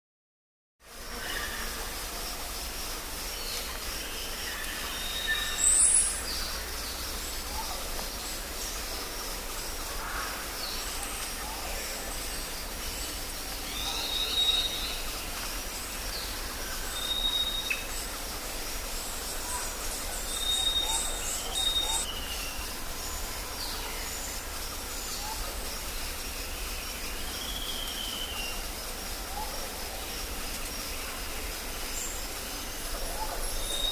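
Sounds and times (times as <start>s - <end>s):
insects chorus: 0.8s - 33.9s
bird calls: 19.1s - 25.6s.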